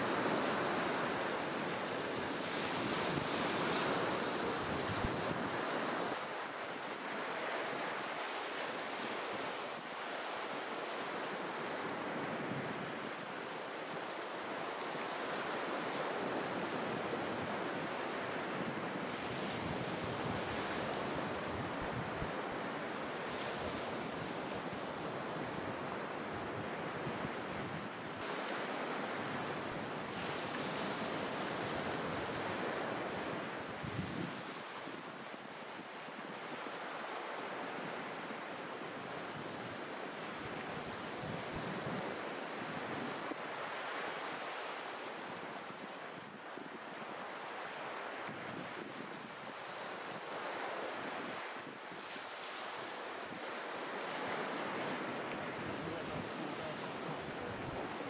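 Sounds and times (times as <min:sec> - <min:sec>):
wind buffeting microphone: 0:00.0 - 0:06.2
sea waves breaking on beach: 0:00.0 - 0:58.0.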